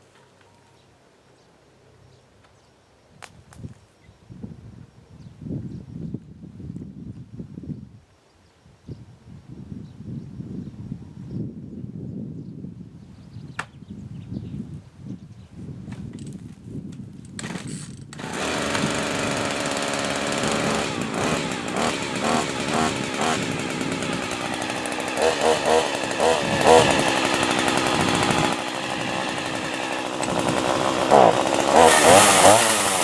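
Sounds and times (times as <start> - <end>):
chainsaw engine revving: 17.4 - 33.0.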